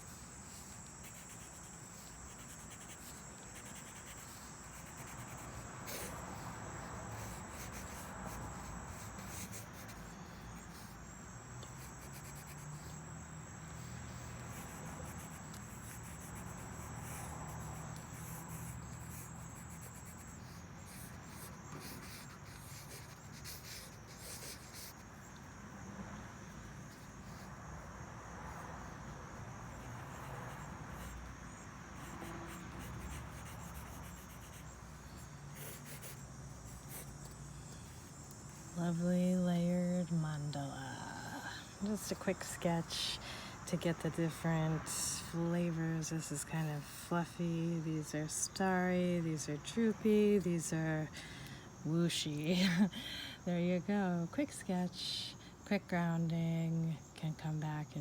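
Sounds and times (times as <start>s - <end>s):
pencil scratching on paper: 0.0s - 11.0s, 11.6s - 13.0s, 13.8s - 25.0s, 29.8s - 31.3s, 32.0s - 34.8s, 35.6s - 37.1s
high insect trill: 0.0s - 58.0s.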